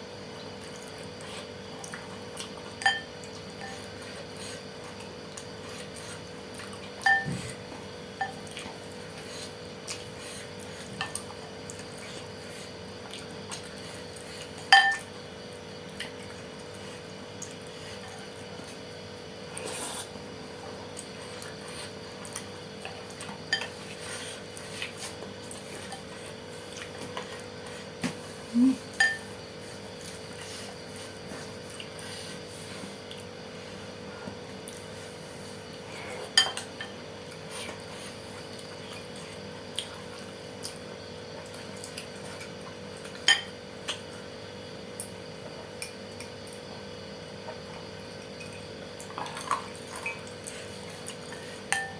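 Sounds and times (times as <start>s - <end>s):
faint steady hum: 0.0s - 51.9s
spoon clinking against bowl: 2.8s - 3.7s, 29.0s - 29.2s
eating sounds: 47.5s - 51.7s.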